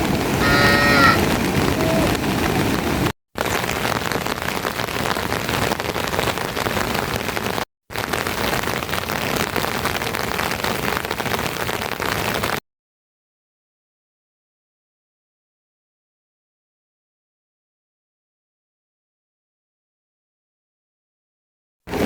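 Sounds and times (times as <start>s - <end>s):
steady rain falling: 0.0s - 12.6s.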